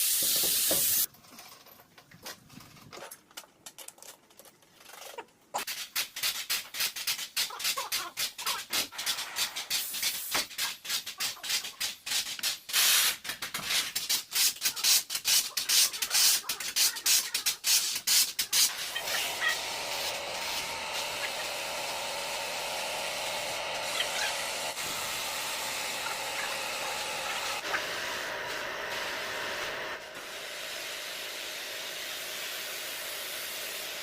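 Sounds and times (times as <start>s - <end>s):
steady hiss: 0.0s - 1.1s, 17.5s - 34.0s.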